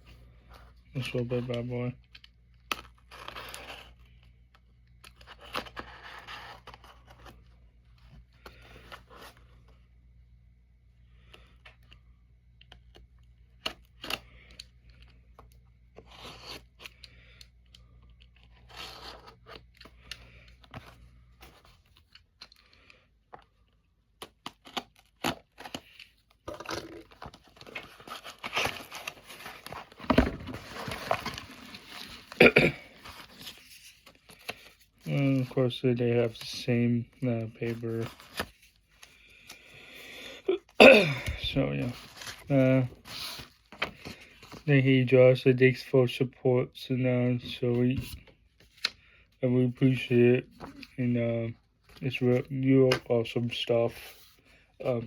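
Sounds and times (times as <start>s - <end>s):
paper packaging tearing: 24.3s - 35.6s.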